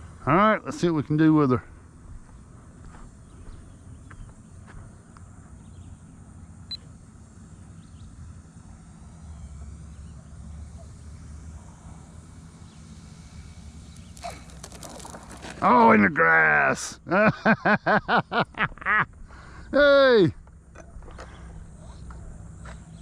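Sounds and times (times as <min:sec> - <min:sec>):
model plane motor whine: 0:06.8 - 0:15.8.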